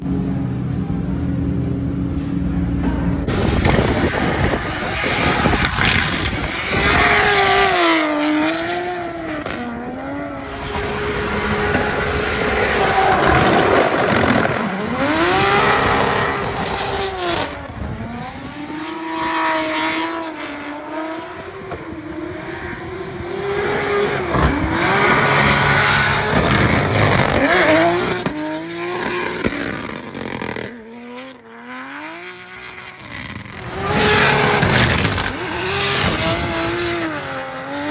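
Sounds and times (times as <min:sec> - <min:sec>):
exhaust cracks: 0:00.0 - 0:20.6, 0:23.4 - 0:31.2, 0:32.0 - 0:37.9
car engine revving hard: 0:03.3 - 0:37.9
tyres screeching: 0:23.9 - 0:30.7.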